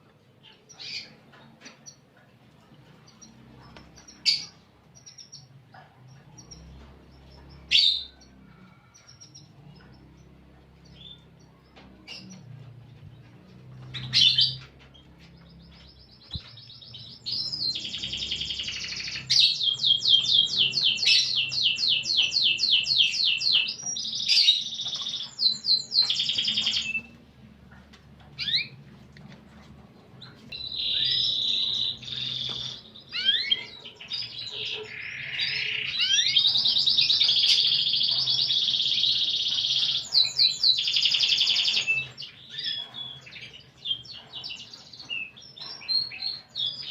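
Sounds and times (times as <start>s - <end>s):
canary singing trills: 0.4s - 46.9s.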